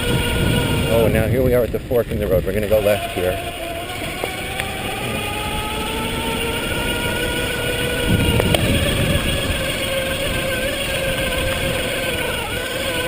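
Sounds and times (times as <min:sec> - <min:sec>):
electric bike motor whining: 0:00.0 - 0:13.0
loud rumble: 0:00.0 - 0:13.0
tyre noise on trail: 0:00.0 - 0:13.0
wind: 0:00.0 - 0:13.0.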